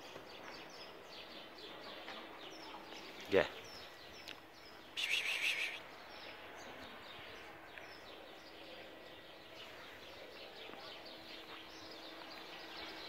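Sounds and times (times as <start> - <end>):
small birds chirping: 0.0 - 13.0
harsh raspy bird call: 5.0 - 5.8.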